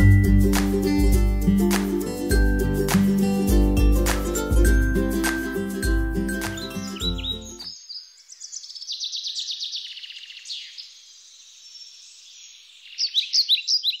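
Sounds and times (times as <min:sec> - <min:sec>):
songbirds trilling and chirping: 0:06.4 - 0:14.0.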